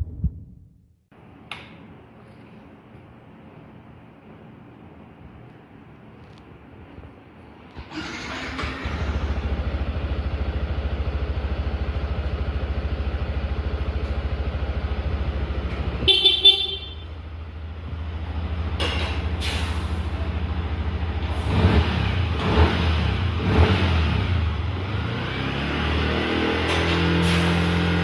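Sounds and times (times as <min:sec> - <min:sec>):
motorcycle engine idling: 0:09.2 - 0:18.8
motorcycle horn: 0:16.0 - 0:17.2.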